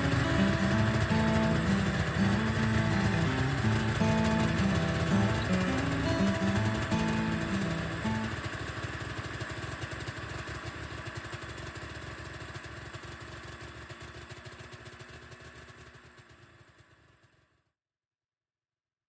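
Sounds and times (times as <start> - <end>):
snowmobile engine idling: 0.0 - 17.4.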